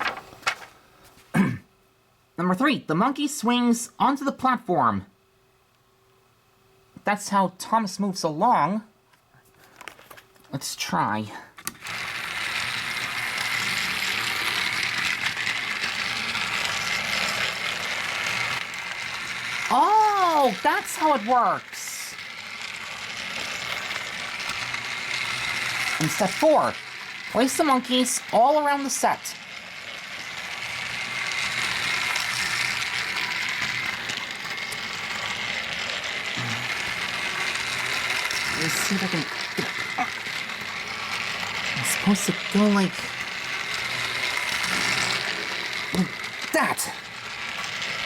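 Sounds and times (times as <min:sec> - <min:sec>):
toy train motor whirring: 0:11.6 - 0:48.0.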